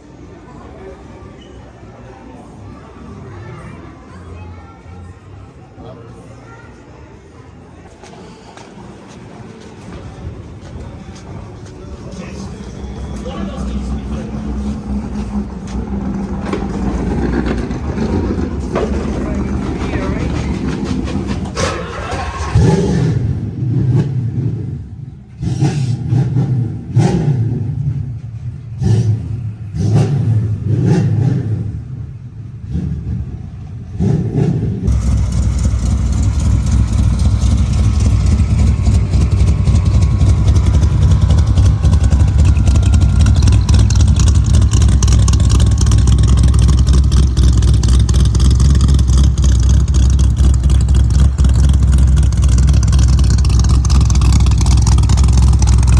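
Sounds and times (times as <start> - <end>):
loud engine drone: 12.0 - 28.0, 28.8 - 55.9
car engine revving: 12.4 - 55.9.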